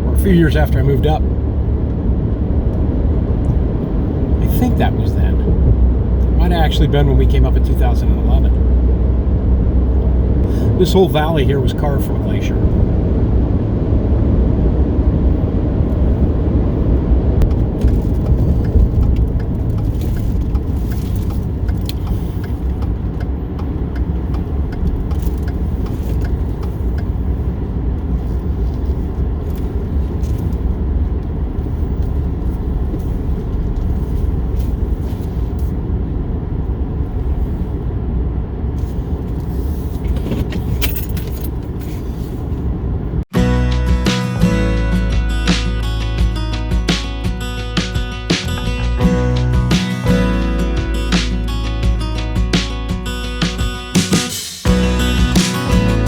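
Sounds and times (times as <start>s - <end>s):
car cabin road rumble: 0.0s - 56.0s
jingling rattles and clicks: 40.4s - 42.1s.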